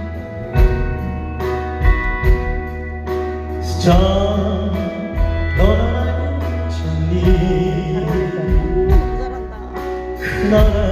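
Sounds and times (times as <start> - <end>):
instrumental backing with bass: 0.0 - 10.9
man singing a pop song: 3.6 - 10.9.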